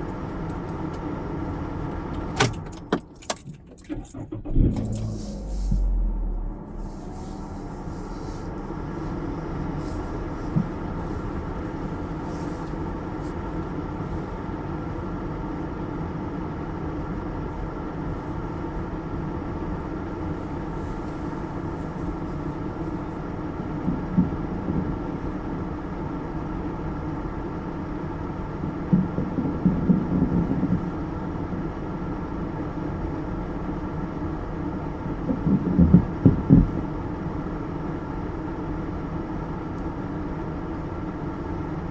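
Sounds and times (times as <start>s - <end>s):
car engine idling: 0.0s - 32.7s.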